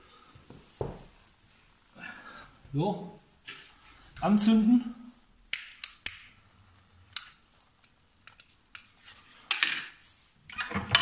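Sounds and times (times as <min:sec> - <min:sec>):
fire crackling with sharp snaps: 0:05.2 - 0:09.6.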